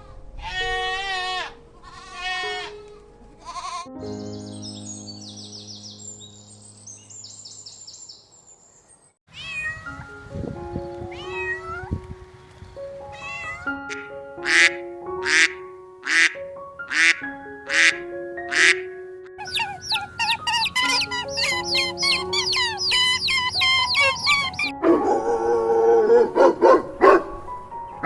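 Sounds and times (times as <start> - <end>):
soft background music: 0.0 - 7.7, 9.4 - 28.0
cat meowing: 9.3 - 10.0, 11.1 - 11.9, 13.1 - 13.8, 19.4 - 24.7.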